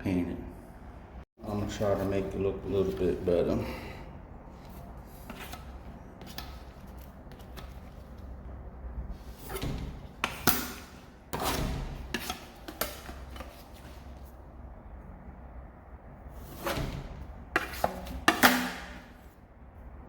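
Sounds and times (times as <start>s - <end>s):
putty knife scraping a door: 4.6s - 8.2s, 9.1s - 14.3s, 16.4s - 19.3s.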